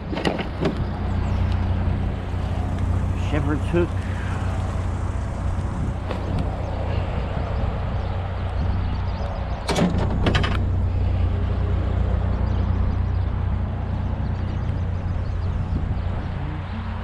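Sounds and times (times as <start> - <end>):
knocks and rattles: 0.0 - 1.2, 9.6 - 10.8
pickup truck engine droning: 0.0 - 17.0.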